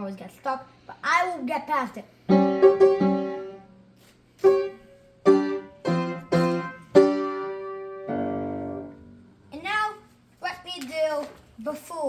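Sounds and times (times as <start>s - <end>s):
piano chords played slowly: 2.3s - 9.5s.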